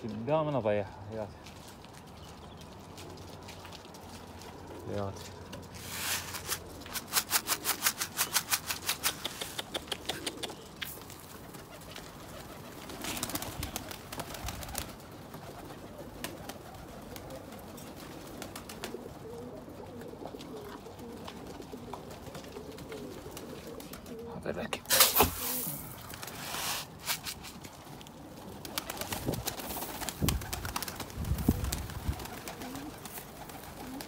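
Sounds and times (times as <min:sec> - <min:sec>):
pigeons cooing: 0:04.1 - 0:24.8, 0:27.8 - 0:34.0.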